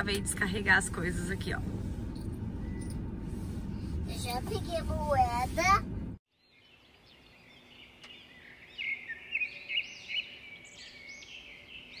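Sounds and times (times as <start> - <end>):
birds chirping and twittering: 6.3 - 12.0.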